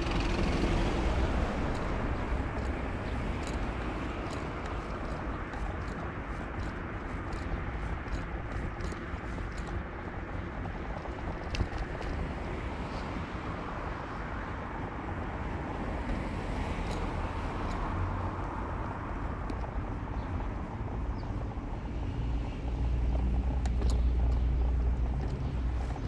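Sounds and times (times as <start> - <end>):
car engine: 0.0 - 12.4
tyre road noise: 0.0 - 26.0.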